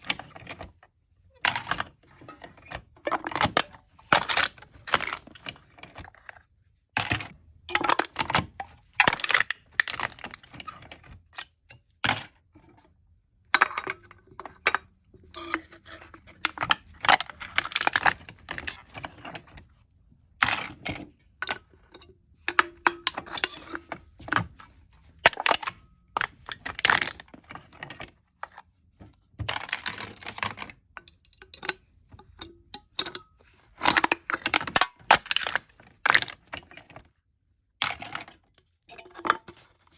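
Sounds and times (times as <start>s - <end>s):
aluminium cans being crushed: 1.4s - 6.4s, 7.0s - 12.5s, 13.5s - 19.5s, 20.4s - 28.5s, 29.4s - 37.1s, 37.8s - 39.9s.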